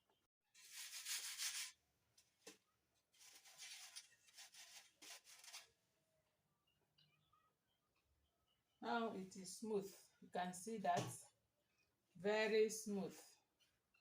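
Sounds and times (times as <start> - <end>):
sieve scraping and rubbing: 0.6 - 1.8, 3.2 - 5.7.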